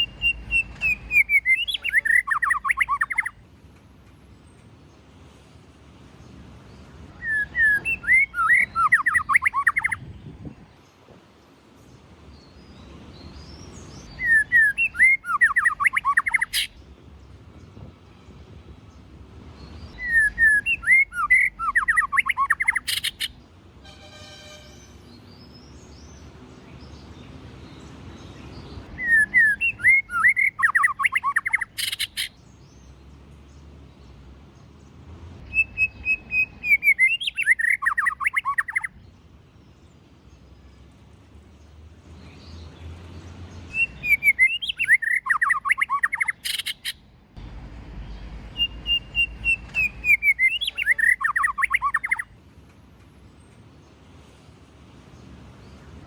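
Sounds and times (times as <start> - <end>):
bird singing whistled phrases: 0.0 - 3.4, 7.2 - 10.0, 14.1 - 16.7, 20.0 - 23.3, 29.0 - 32.3, 35.4 - 38.9, 43.7 - 47.0, 48.5 - 52.3.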